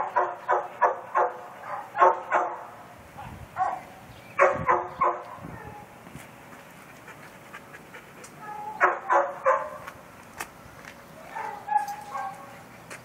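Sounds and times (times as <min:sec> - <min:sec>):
dog barking: 0:00.0 - 0:05.8, 0:08.4 - 0:09.9, 0:11.2 - 0:12.5.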